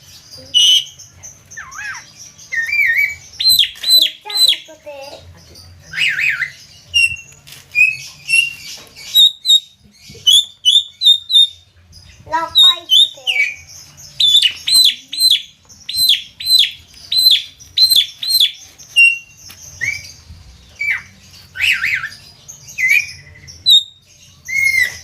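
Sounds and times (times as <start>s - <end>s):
myna calling: 12.3s - 13.6s, 14.2s - 19.3s.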